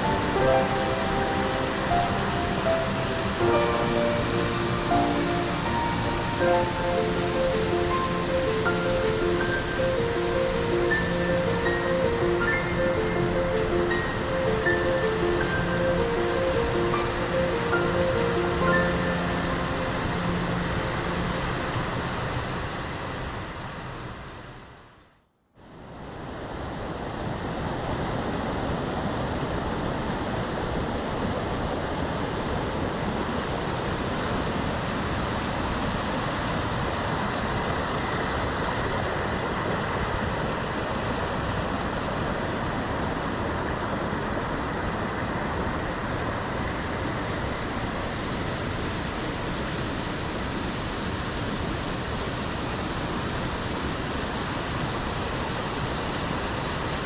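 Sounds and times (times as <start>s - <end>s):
waterfall roaring: 0.0s - 24.3s.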